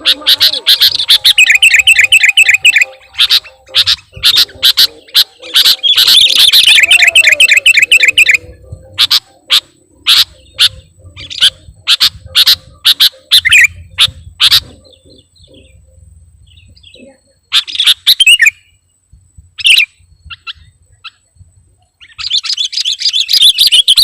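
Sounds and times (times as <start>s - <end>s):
sharp bird call notes: 0.0s - 15.8s
bulbuls chattering: 0.0s - 24.0s.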